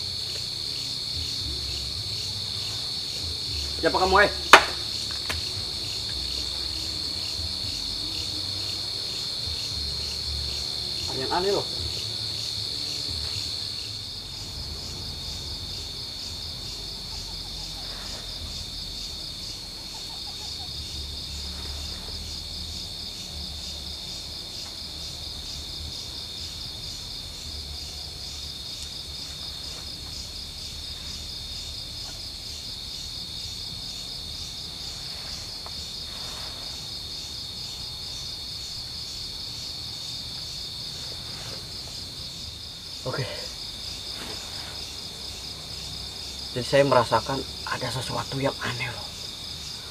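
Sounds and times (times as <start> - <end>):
crickets trilling: 0.0 - 49.9
faint rustles: 19.9 - 22.8, 34.8 - 37.8, 40.4 - 42.6, 43.8 - 45.4.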